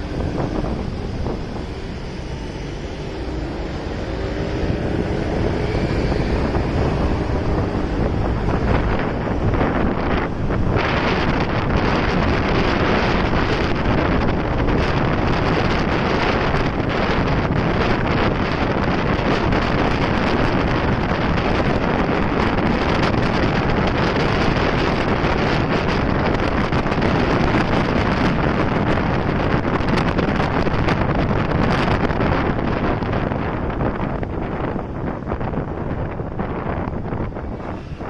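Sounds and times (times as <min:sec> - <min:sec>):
motorcycle running: 0:00.0 - 0:38.0
road noise: 0:00.0 - 0:38.0
wind rushing over microphone: 0:00.0 - 0:38.0.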